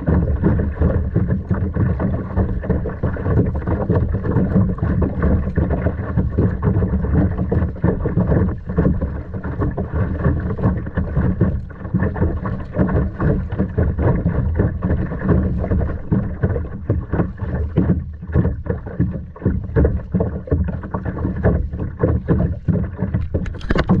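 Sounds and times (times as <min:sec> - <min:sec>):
water sloshing around a kayak: 0:00.0 - 0:24.0
wind buffeting microphone: 0:21.8 - 0:24.0.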